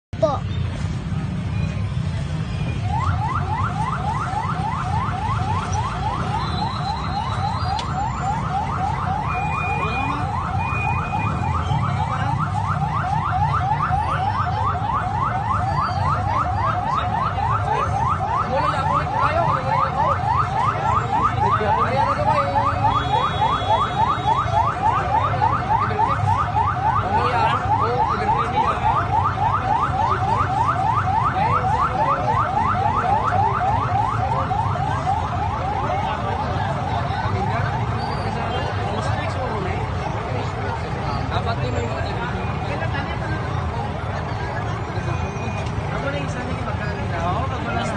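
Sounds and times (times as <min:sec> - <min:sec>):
vehicle alarm whooping: 0:02.4 - 0:43.0.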